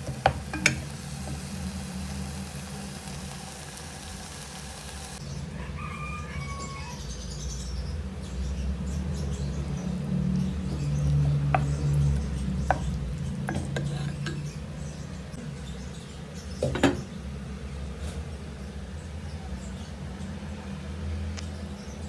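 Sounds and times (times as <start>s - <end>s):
utensil clinking against cookware: 0.0s - 1.4s, 10.8s - 14.6s.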